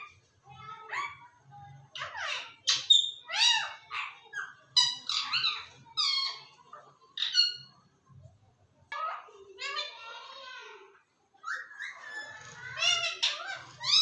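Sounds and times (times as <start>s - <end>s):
parrot squawking and chattering: 1.9s - 7.8s, 8.9s - 14.0s.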